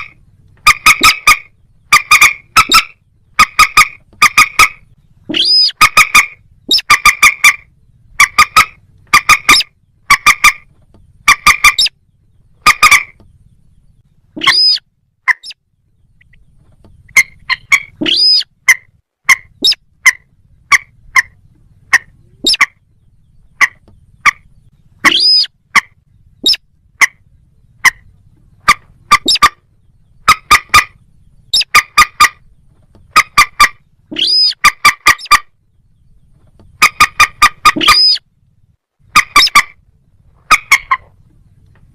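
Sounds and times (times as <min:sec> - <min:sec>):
bird call sweeping up: 0:03.6 - 0:07.6, 0:14.4 - 0:15.6, 0:17.2 - 0:18.5, 0:25.0 - 0:25.6, 0:33.4 - 0:35.4, 0:36.9 - 0:38.2
sharp bird call notes: 0:12.6 - 0:13.2, 0:23.5 - 0:27.2, 0:36.8 - 0:38.2.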